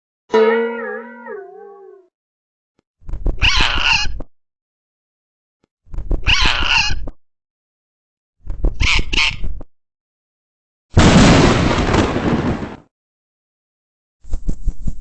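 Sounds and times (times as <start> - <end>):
bird squawking harshly: 3.4 - 4.2, 6.2 - 7.0.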